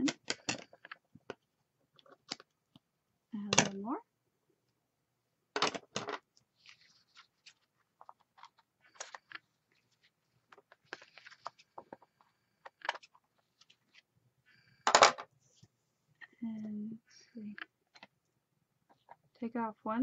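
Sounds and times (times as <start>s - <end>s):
paper rustling and crinkling: 6.5s - 14.1s.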